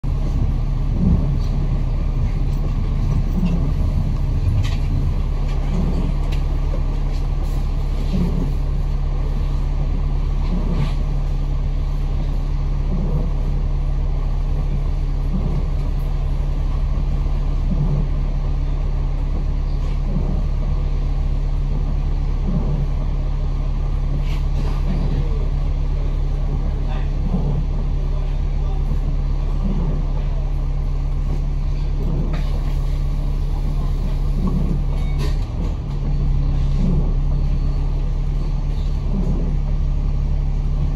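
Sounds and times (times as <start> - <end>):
bus engine running: 0.0 - 40.9.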